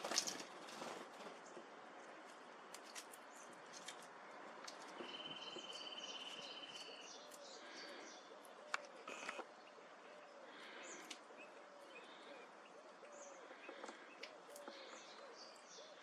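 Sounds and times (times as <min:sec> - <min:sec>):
songbirds chirping: 0:00.0 - 0:16.0
bird trill: 0:05.0 - 0:16.0
sharp clicks: 0:08.7 - 0:09.5.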